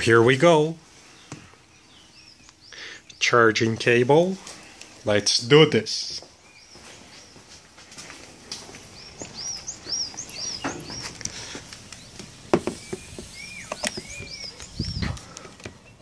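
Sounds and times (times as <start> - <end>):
bird chirping and whistling: 12.7 - 15.2.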